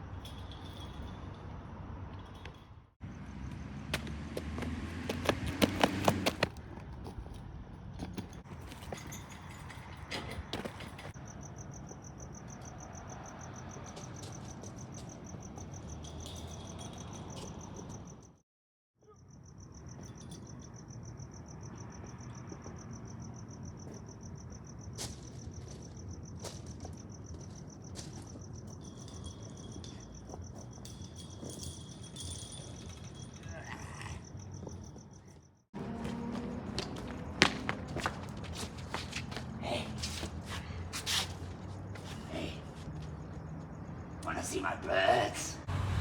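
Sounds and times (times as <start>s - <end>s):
cricket trilling: 8.5s - 18.3s, 19.0s - 45.8s.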